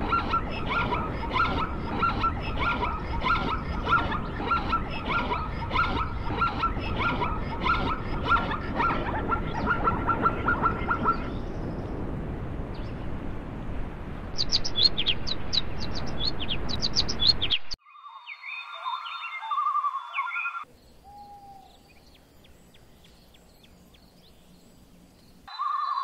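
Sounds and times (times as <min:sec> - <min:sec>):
small birds chirping: 0:00.0 - 0:12.0, 0:14.4 - 0:26.0
steady rushing noise: 0:00.0 - 0:17.8
whistled bird calls: 0:14.4 - 0:22.2, 0:25.5 - 0:26.0.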